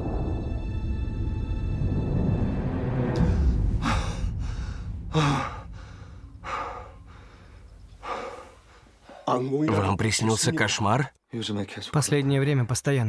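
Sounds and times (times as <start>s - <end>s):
low music rumble: 0.0s - 9.0s
person gasping breaths: 3.2s - 9.3s.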